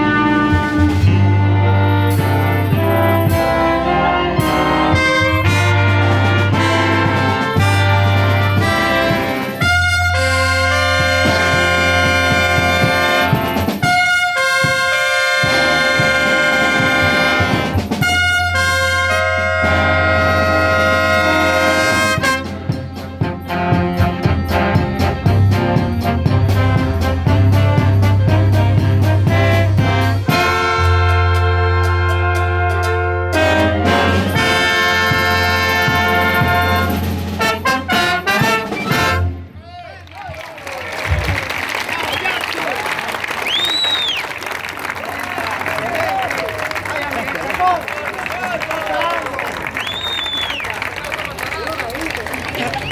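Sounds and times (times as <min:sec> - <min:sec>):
trumpets and trombones chords: 0:00.0 - 0:39.7
concert band playing: 0:00.0 - 0:52.9.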